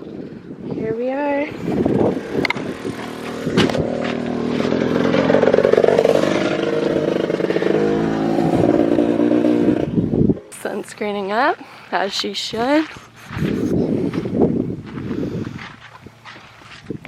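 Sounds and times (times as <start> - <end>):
dirt bike engine running: 1.3 - 11.0.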